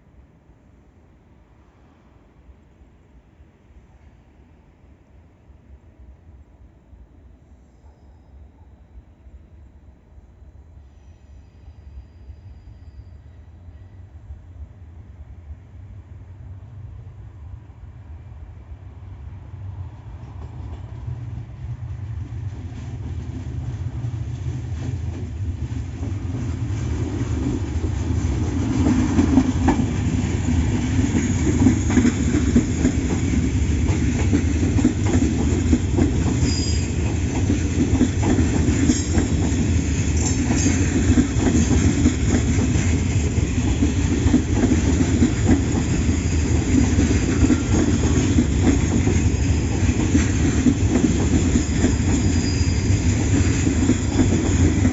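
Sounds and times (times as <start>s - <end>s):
train wheels clattering on rails: 20.2s - 54.9s.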